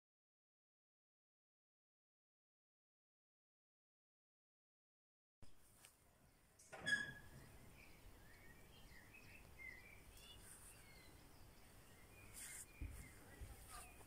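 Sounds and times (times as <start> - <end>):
outdoor background hiss: 5.4 - 14.0
birds chirping and singing: 6.8 - 14.0.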